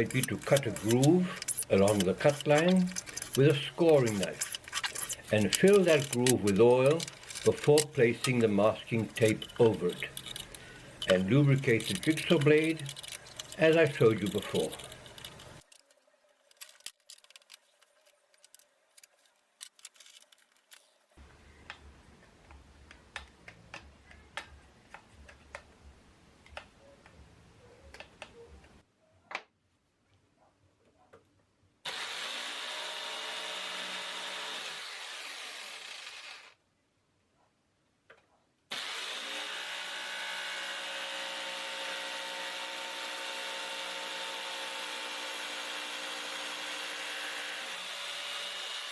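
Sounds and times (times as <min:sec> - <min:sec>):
electric jigsaw cutting plastic: 0:00.0 - 0:15.6, 0:31.9 - 0:36.6, 0:38.7 - 0:48.9
faint clicks and scraping: 0:00.0 - 0:27.2.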